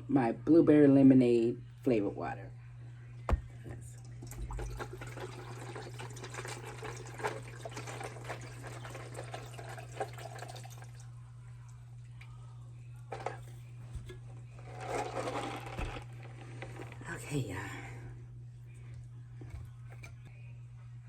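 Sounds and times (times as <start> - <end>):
water pouring into a cup: 4.0 - 11.8, 14.6 - 17.0.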